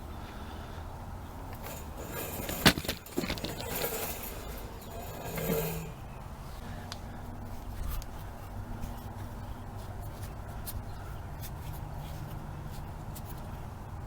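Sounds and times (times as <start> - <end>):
steady low hum: 0.0 - 8.4
small parts clicking and rustling: 1.5 - 6.2.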